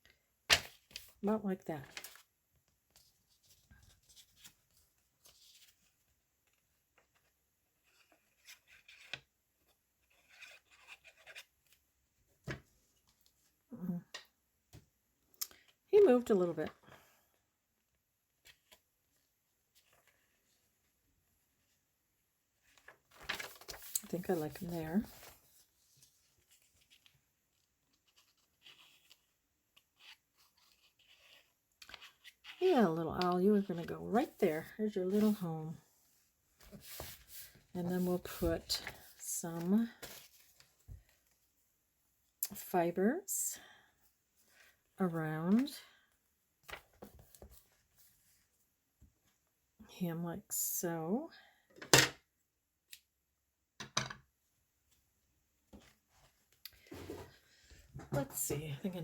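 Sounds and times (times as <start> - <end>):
paper rustling: 0.5 - 1.2, 22.6 - 32.6, 33.6 - 35.4, 36.6 - 41.2
paper rustling and tapping: 22.8 - 25.3.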